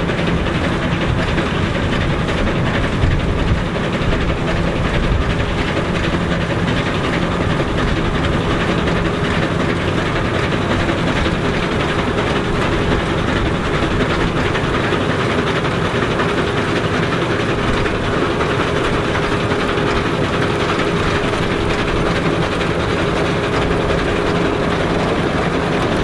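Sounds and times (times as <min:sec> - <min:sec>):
engine humming: 0:00.0 - 0:26.0.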